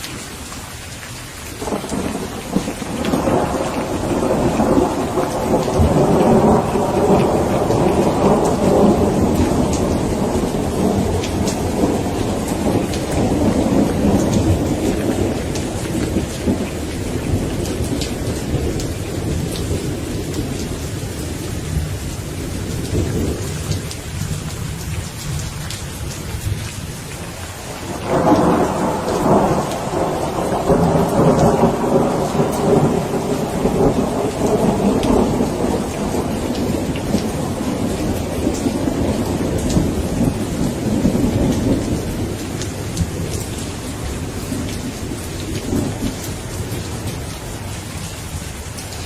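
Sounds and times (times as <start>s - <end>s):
steady rain: 0.0s - 49.0s
thunderclap: 1.6s - 20.6s, 27.7s - 47.2s
thunder rumbling: 1.6s - 25.4s, 26.0s - 48.4s.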